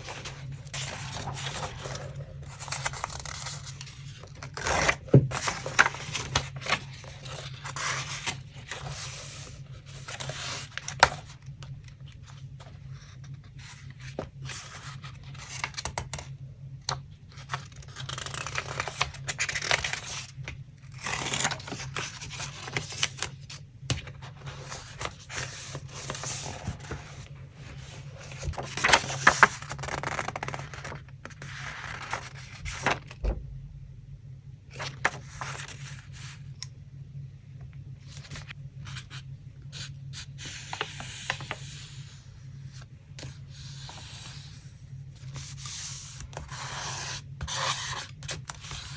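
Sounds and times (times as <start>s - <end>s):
paper rustling and scraping: 0.0s - 16.2s, 20.9s - 33.3s
low steady hum: 0.0s - 48.9s.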